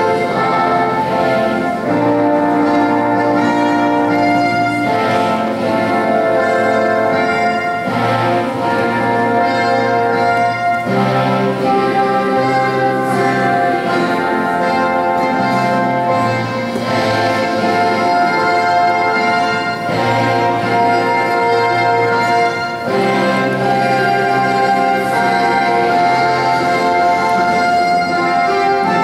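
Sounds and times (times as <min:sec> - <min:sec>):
orchestral brass chords: 0:00.0 - 0:29.0.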